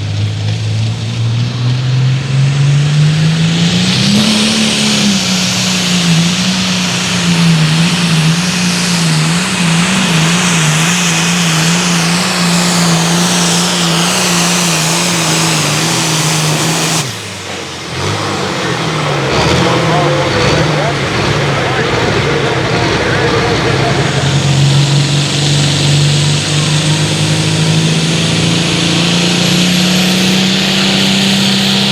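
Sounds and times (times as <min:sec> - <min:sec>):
diesel tractor engine revving: 0:00.0 - 0:31.9.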